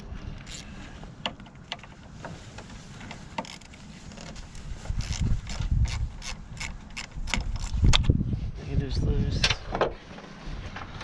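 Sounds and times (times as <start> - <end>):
wrench clicking: 5.0 - 7.8.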